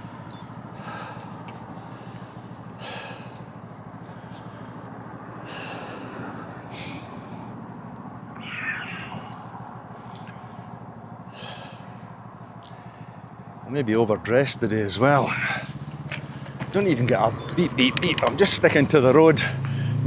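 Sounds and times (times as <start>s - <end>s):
cyclist breathing hard: 0.0s - 13.6s, 15.3s - 16.7s, 19.6s - 20.0s
road and wind noise: 0.0s - 20.0s.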